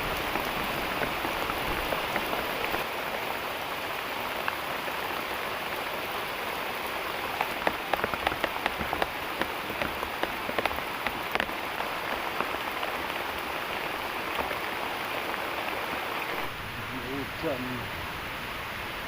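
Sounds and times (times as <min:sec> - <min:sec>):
heavy rain hiss: 0:00.0 - 0:19.0
sharp ticks and taps: 0:07.2 - 0:12.9.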